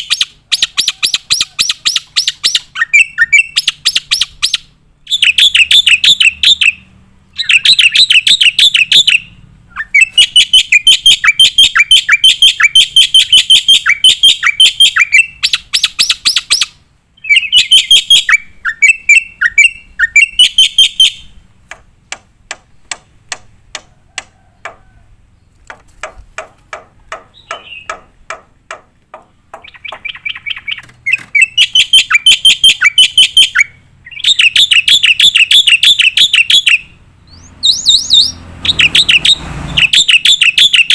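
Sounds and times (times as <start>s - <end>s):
bird sharp clicking notes: 25.6s - 33.7s
starling shrill chattering song: 29.6s - 40.9s.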